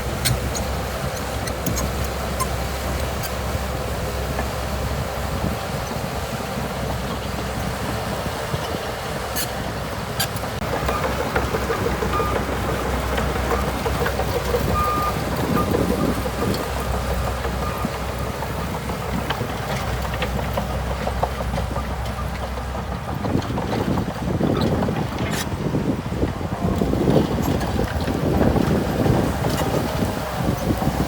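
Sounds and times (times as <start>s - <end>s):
bulldozer diesel engine running: 0.0s - 31.0s
brief squeaks: 9.4s - 9.6s.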